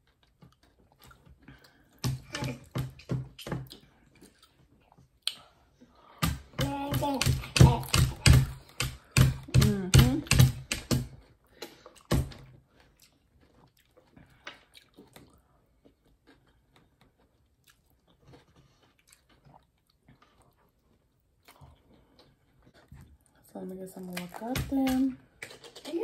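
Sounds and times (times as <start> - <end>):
wet crunchy chewing: 0.0 - 2.0, 11.2 - 23.4, 25.2 - 26.0
person speaking: 23.4 - 25.2.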